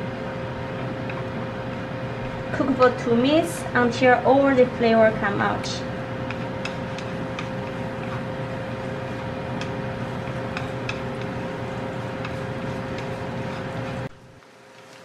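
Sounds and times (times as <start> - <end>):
steady hum: 0.0 - 15.0
onion sizzling in oil: 5.8 - 15.0
chopsticks clicking against pan: 6.2 - 8.2, 9.6 - 11.4, 12.2 - 13.5.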